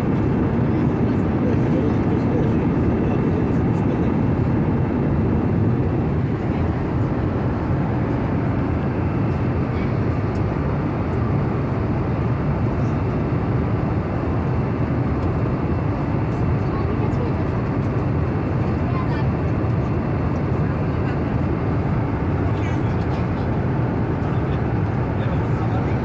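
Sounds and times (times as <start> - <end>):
jet engine cabin rumble: 0.0 - 26.0.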